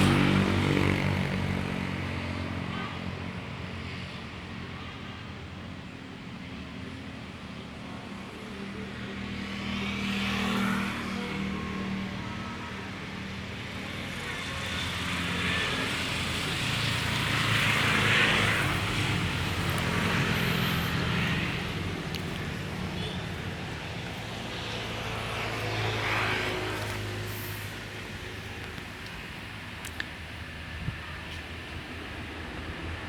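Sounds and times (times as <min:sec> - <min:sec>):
passing train rushing noise: 0:09.9 - 0:33.0
diesel locomotive engine drone: 0:10.8 - 0:33.0.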